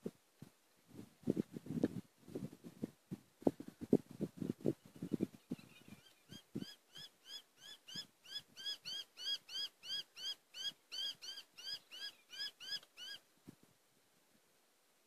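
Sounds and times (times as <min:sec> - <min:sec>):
bird squeaky rapid calls: 0:05.1 - 0:13.2.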